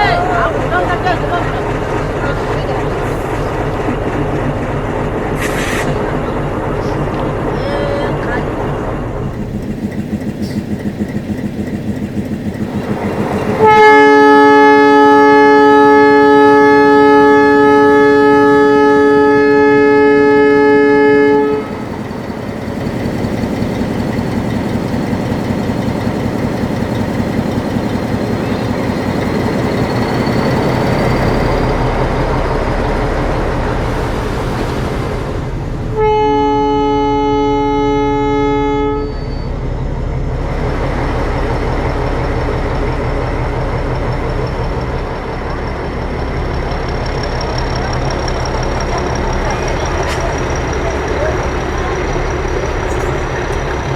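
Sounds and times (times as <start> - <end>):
diesel engine rumbling: 0.0 - 53.9
locomotive horn blast: 12.2 - 23.4, 35.9 - 39.6.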